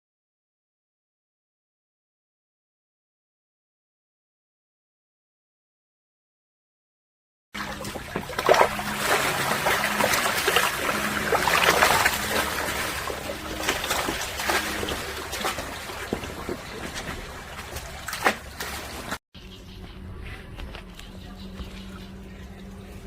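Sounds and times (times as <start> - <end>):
steady low hum: 7.6 - 23.0
water splashing and trickling: 7.6 - 23.0.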